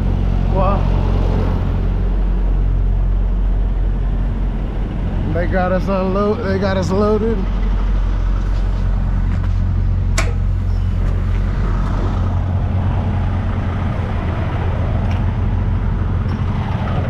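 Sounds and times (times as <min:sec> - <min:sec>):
diesel truck engine droning: 0:00.0 - 0:17.0
sharp click: 0:10.2 - 0:10.5.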